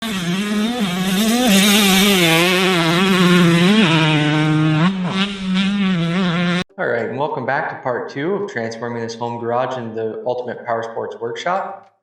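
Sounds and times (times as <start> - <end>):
motor running fast: 0.0 - 6.6.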